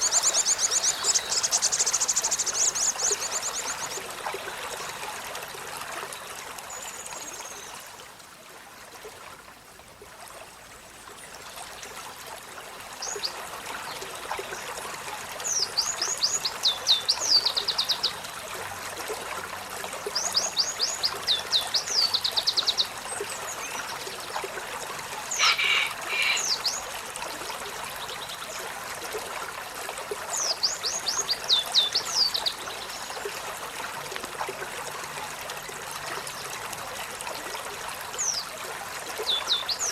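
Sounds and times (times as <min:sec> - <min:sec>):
trickle of water: 0:00.0 - 0:39.9
bird call notes: 0:25.4 - 0:26.6.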